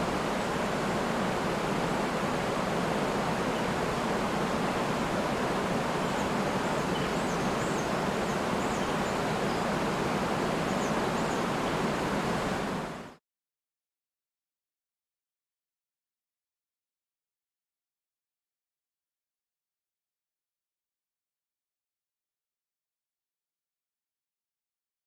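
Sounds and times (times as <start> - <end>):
rushing river and waterfall: 0.0 - 13.2.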